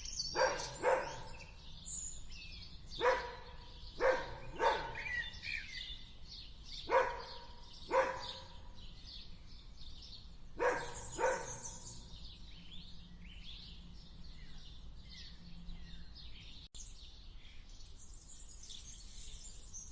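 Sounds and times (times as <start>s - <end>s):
high-pitched bird chirping: 0.0s - 6.1s, 10.6s - 12.2s
dog barking: 0.3s - 1.6s, 2.9s - 5.4s, 6.8s - 8.7s, 10.6s - 12.0s.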